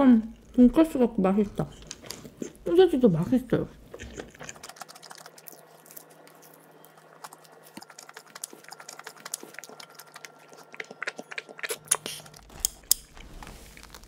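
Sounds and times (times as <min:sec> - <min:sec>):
crunchy chewing: 0:03.8 - 0:14.0.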